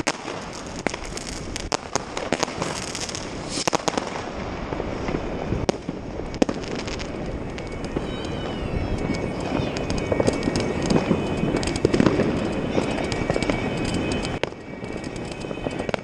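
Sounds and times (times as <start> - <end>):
distant fireworks explosions: 0.0 - 16.0
firecrackers banging: 0.0 - 16.0.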